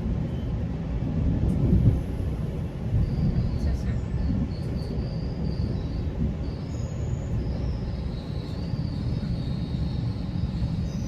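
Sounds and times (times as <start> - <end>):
train rumbling on rails: 0.0 - 11.0
faint high-pitched squeal: 3.0 - 11.0.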